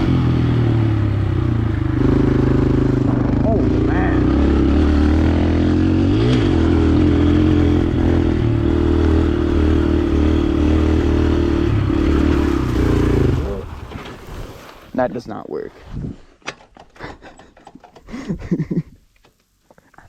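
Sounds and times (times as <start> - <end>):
dirt bike engine running: 0.0 - 13.8.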